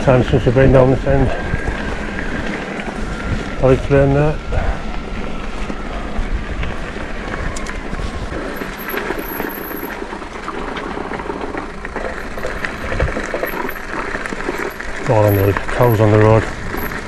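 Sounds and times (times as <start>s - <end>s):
wind on microphone: 0.0s - 14.6s
tyre rolling noise: 0.0s - 17.0s
bike clicks and rattles: 5.0s - 17.0s.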